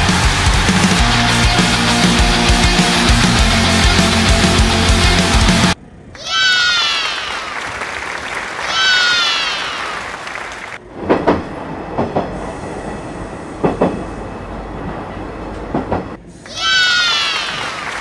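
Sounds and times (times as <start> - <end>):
electric train rolling: 0.0 - 5.8, 10.8 - 16.4
wheels knocking on rail joints: 13.6 - 14.0, 15.5 - 16.2.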